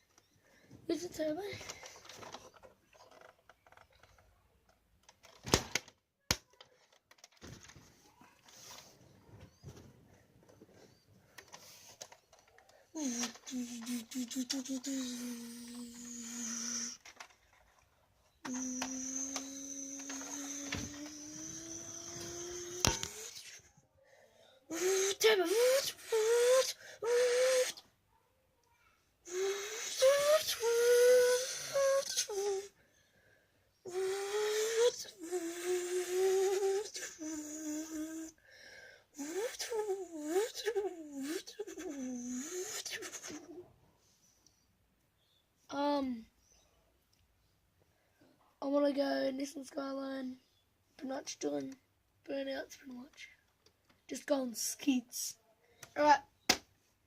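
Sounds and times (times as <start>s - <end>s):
person imitating car with mouth: 13.0s - 17.1s, 18.4s - 23.6s, 24.7s - 27.9s, 29.3s - 32.7s, 33.9s - 38.4s, 39.2s - 43.7s.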